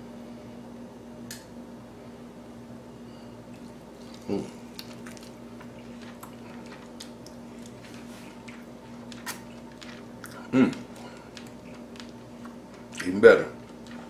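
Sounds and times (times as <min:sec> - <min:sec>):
low electrical hum: 0:00.0 - 0:14.0
person chewing food: 0:03.5 - 0:14.0
person humming briefly: 0:04.2 - 0:04.6.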